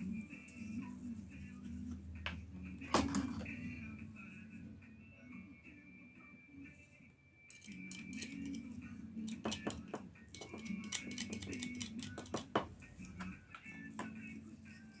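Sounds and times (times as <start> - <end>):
faint background music: 0.0 - 15.0
small metal parts clicking: 7.5 - 8.6, 10.3 - 12.4.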